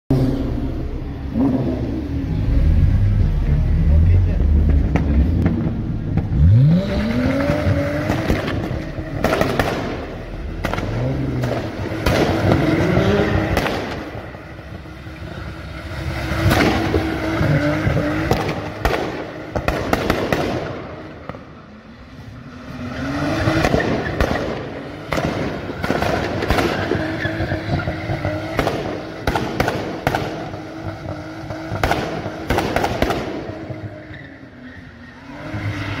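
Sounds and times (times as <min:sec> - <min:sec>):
car engine revving on limiter: 0:00.1 - 0:21.5, 0:22.2 - 0:36.0
exhaust cracks and bangs: 0:04.3 - 0:06.6, 0:07.4 - 0:14.9, 0:16.4 - 0:21.5, 0:23.4 - 0:33.9.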